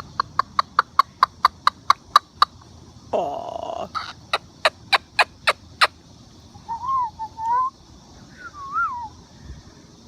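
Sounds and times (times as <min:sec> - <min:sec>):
cockatoo whistle-like calls: 0:06.6 - 0:09.1.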